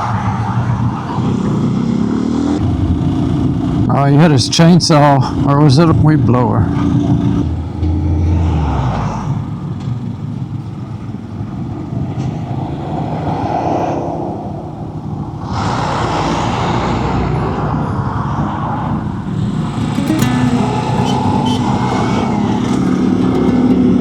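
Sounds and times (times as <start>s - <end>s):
wind and road noise: 0.0s - 24.0s
motorcycle engine running: 0.4s - 5.7s, 6.6s - 8.2s, 19.2s - 24.0s.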